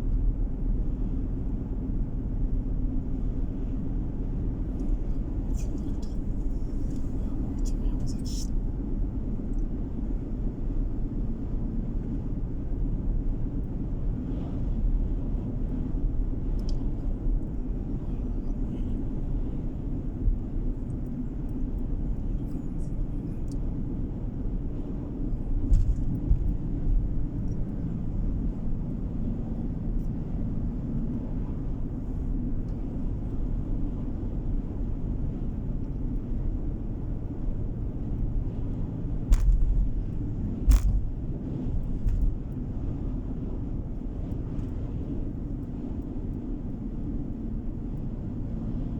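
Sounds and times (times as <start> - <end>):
engine and tyre rumble: 0.0 - 48.9
faint ticks: 16.6 - 16.8.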